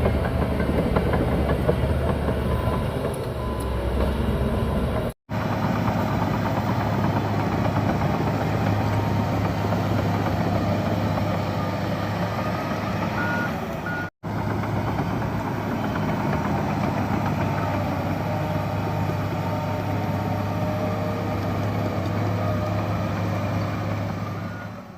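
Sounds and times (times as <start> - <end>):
bulldozer diesel engine running: 0.0 - 24.9
reversing alarm beeps: 2.4 - 4.9, 13.2 - 14.1.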